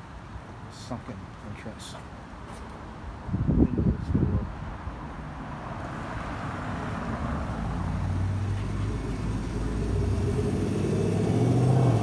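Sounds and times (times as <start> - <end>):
vehicle engine approaching: 7.4 - 12.0.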